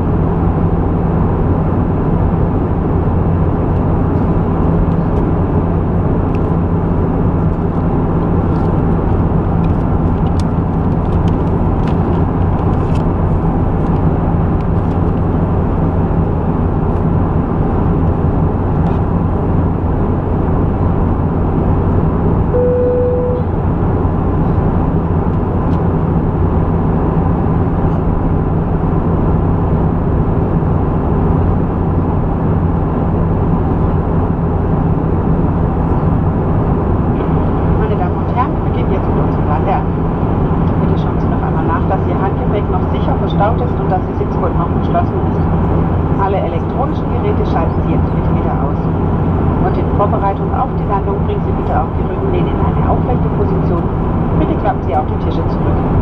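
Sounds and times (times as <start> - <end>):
aircraft engine drone: 0.0 - 56.0
constant low hum: 0.0 - 56.0
single tone: 22.5 - 23.6.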